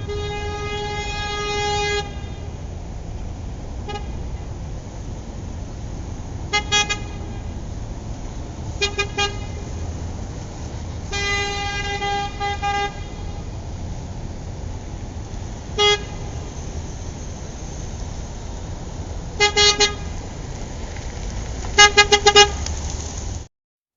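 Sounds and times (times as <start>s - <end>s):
car horn honking: 0.0s - 2.6s, 3.8s - 4.4s, 6.5s - 7.6s, 8.8s - 9.7s, 11.1s - 13.6s, 15.8s - 16.5s, 19.4s - 20.1s, 21.8s - 22.6s
low traffic rumble: 0.0s - 23.5s.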